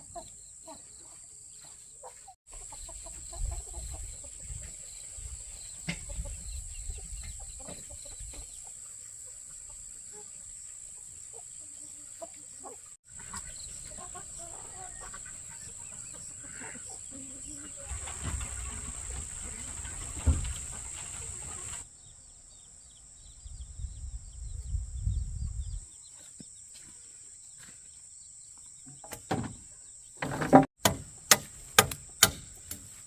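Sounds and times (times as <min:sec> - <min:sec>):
chickens clucking: 0:00.0 - 0:21.8.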